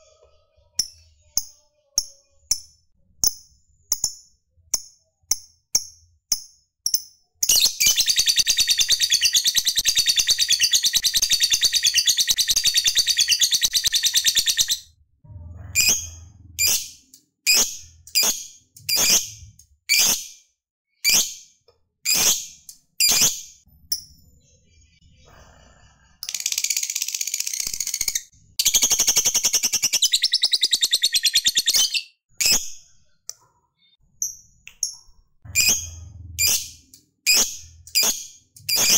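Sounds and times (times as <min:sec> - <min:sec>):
sharp bird chirps: 0:06.9 - 0:14.9, 0:26.5 - 0:33.2.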